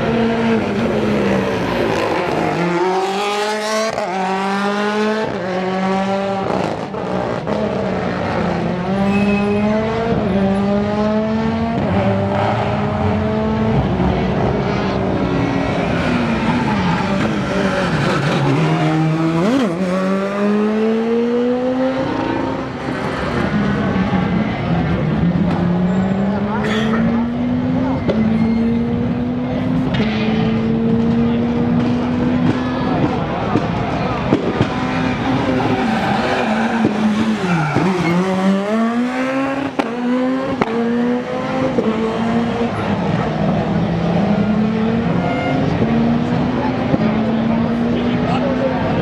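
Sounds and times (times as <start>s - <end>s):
rally car engine: 0.0s - 49.0s.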